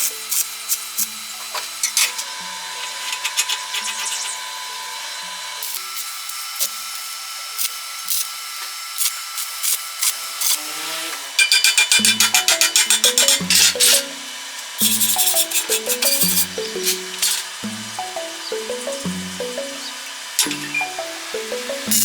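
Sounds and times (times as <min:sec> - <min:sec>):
power tool motor whine: 0:00.2 - 0:11.4.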